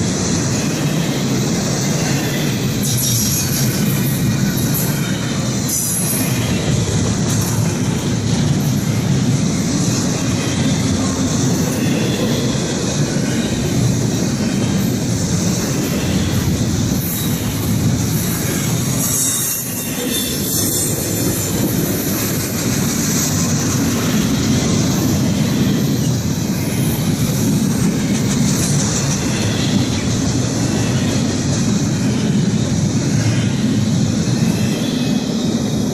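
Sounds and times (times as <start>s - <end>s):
freight train cars rolling: 0.0s - 35.9s
steel wheels clacking on rails: 0.0s - 35.9s
high wheel squeal: 0.5s - 31.4s.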